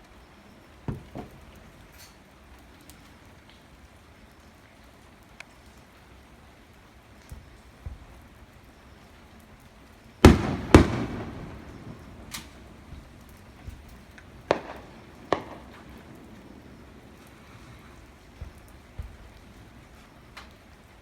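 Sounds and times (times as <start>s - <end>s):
faint fireworks cracks: 0.0s - 21.0s
fireworks booming: 0.9s - 1.6s, 10.2s - 20.0s.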